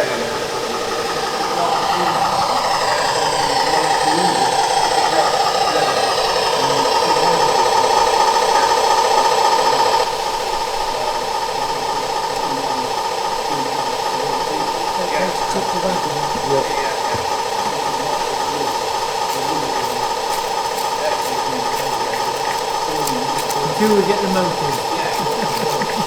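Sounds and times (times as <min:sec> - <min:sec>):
model train humming and whining: 0:00.0 - 0:26.0.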